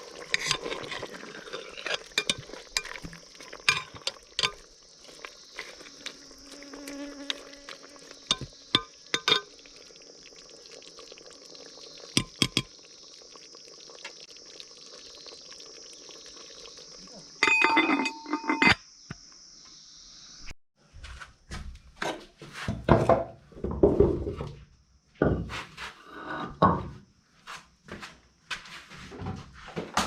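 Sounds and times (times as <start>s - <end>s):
insect chirring: 0.0s - 20.6s
cooking utensils clicking: 0.3s - 4.7s
fly buzzing: 4.8s - 10.0s.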